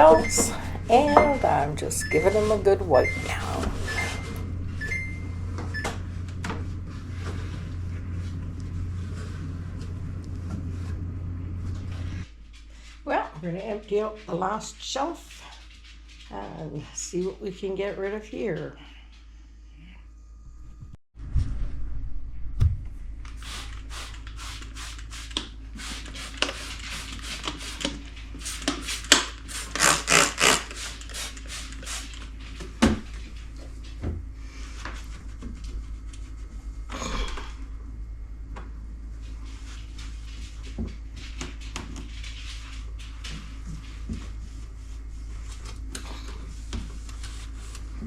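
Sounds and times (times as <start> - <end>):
jars and bottles knocking: 0.0 - 2.4
steady low hum: 0.0 - 27.1, 30.4 - 48.0.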